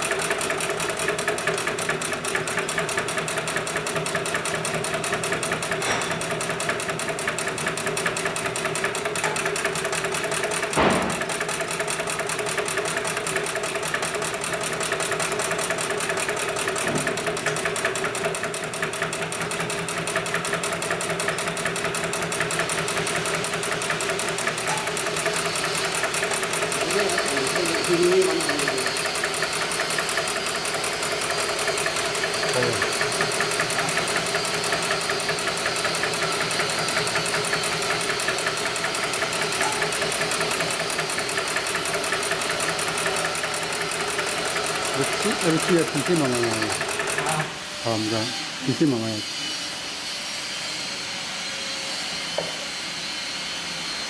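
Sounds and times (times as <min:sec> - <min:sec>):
industrial sewing machine stitching: 0:00.0 - 0:49.2
sharp knock: 0:10.8 - 0:11.3.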